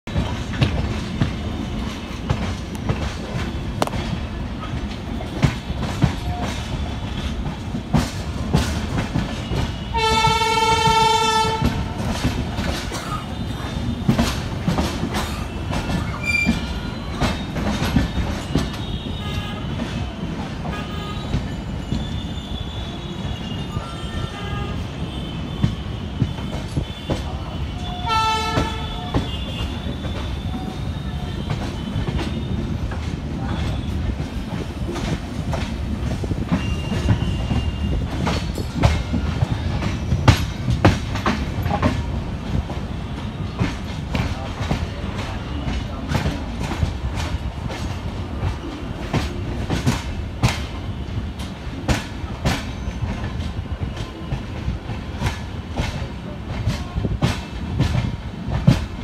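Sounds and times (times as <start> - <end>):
train wheels rumbling: 0.0 - 59.0
train horn: 9.4 - 12.2, 18.7 - 21.5, 22.1 - 32.7.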